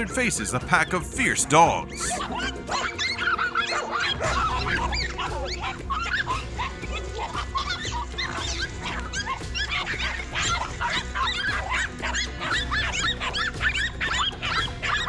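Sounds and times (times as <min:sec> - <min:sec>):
background music: 0:00.0 - 0:15.0
dogs barking and yelping: 0:01.8 - 0:15.0.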